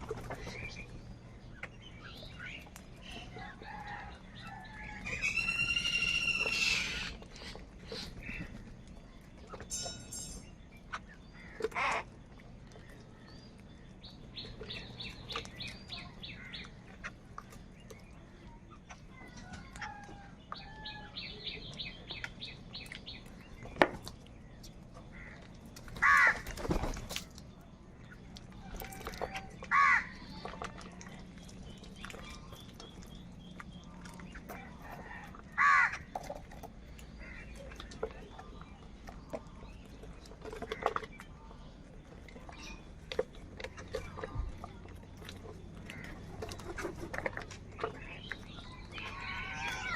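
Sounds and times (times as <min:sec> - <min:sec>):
small birds chirping: 0:00.0 - 0:49.9
crows cawing: 0:25.2 - 0:25.4, 0:26.0 - 0:26.5, 0:29.7 - 0:30.2, 0:35.6 - 0:36.1.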